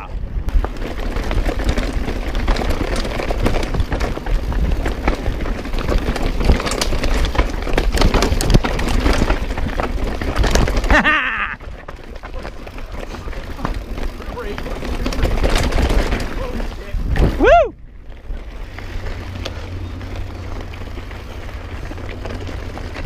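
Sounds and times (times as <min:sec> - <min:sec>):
bike clicks and rattles: 0:00.0 - 0:23.0
bike tyre noise: 0:00.0 - 0:23.0
wind rumbling on microphone: 0:00.0 - 0:23.0
person shouting: 0:17.4 - 0:17.8.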